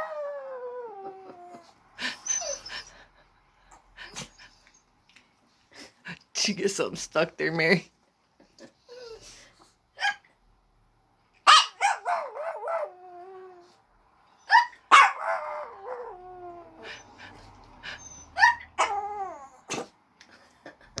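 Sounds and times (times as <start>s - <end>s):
small dog yipping and howling: 0.0s - 2.7s, 11.5s - 13.8s, 14.4s - 17.2s, 18.0s - 19.8s.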